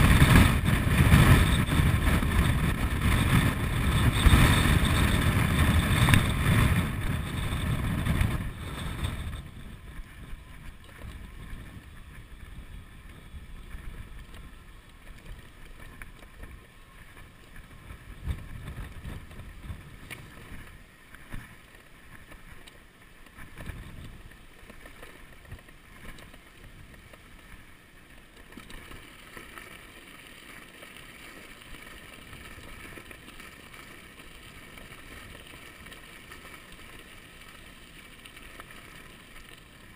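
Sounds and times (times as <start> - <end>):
wind buffeting microphone: 0.0 - 14.6, 17.6 - 20.8
bicycle riding noise: 0.0 - 39.9.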